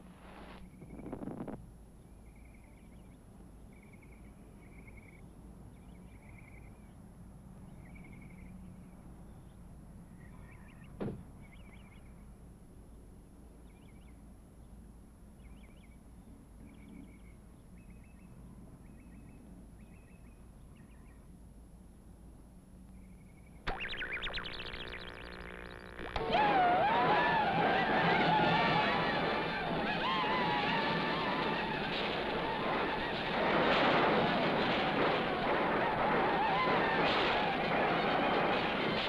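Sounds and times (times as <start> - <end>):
low steady hum: 22.9 - 27.1
small birds chirping: 23.7 - 26.2.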